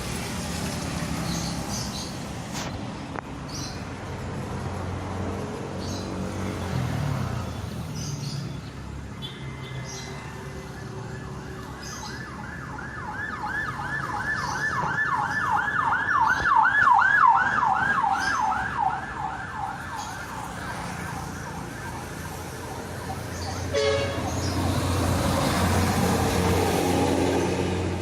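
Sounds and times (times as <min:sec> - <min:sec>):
siren yelping: 0:10.4 - 0:23.8.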